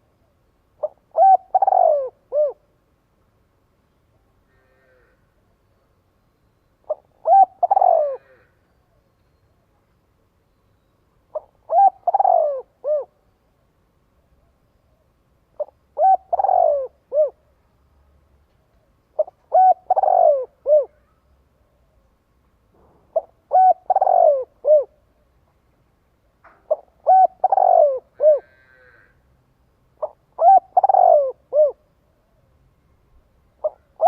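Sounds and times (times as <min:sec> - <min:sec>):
dove cooing: 0:00.8 - 0:02.7, 0:06.8 - 0:08.6, 0:11.3 - 0:13.2, 0:15.6 - 0:17.4, 0:19.2 - 0:21.2, 0:23.1 - 0:25.1, 0:26.7 - 0:29.2, 0:30.0 - 0:31.9, 0:33.6 - 0:34.0.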